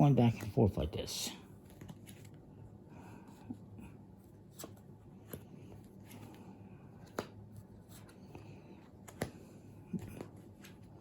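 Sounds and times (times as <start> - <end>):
playing cards laid on table: 0.0 - 1.0.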